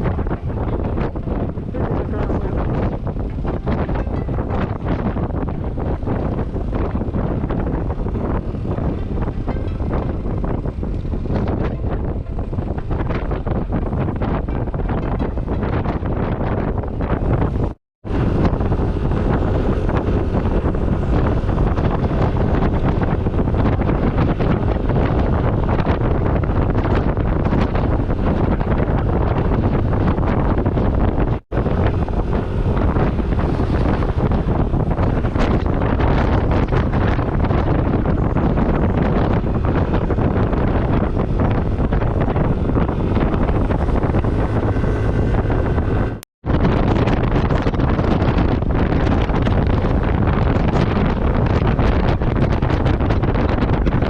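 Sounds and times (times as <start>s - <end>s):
heavy wind buffeting microphone: 0.0s - 54.0s
road noise: 0.0s - 54.0s.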